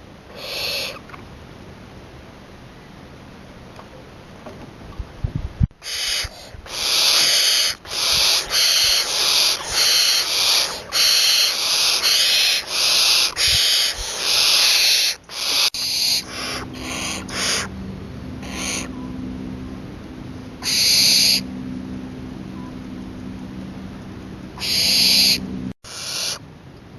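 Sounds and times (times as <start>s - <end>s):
barn owl hissing screeches: 0.3s - 1.0s, 5.8s - 17.7s, 20.6s - 21.5s, 24.6s - 26.4s.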